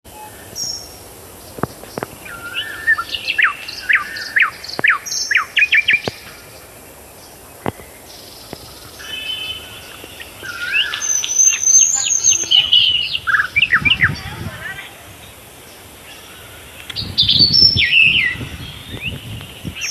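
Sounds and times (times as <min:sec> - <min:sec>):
songbirds chirping: 0:00.1 - 0:19.9.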